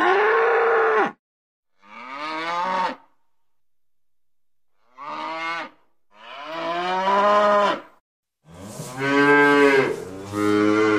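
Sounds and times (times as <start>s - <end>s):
cows mooing: 1.8s - 3.1s, 4.8s - 7.9s, 8.6s - 10.9s.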